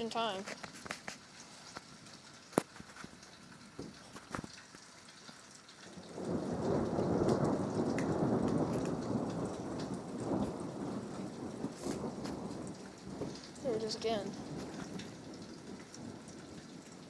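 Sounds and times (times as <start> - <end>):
rain falling: 0.0 - 17.0
thunder rumbling: 5.9 - 17.0.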